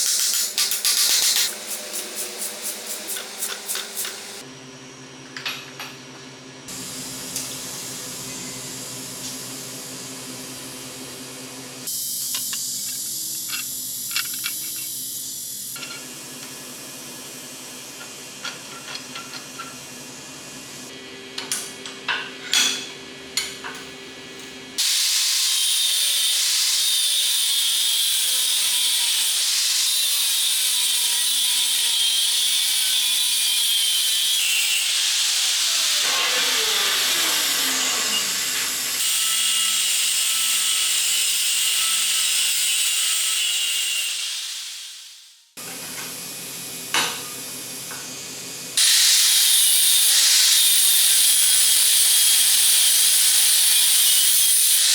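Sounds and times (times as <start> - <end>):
power tool hissing: 0.0 - 4.4, 24.8 - 30.6, 34.1 - 41.7, 48.8 - 54.9.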